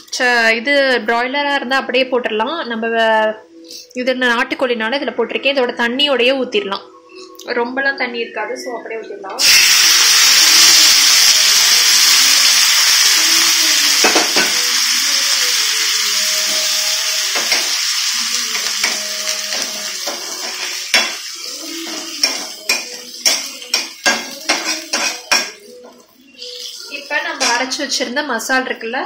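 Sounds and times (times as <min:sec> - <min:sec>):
food sizzling in oil: 0:09.4 - 0:27.9
metal spatula scraping a pan: 0:18.6 - 0:27.7.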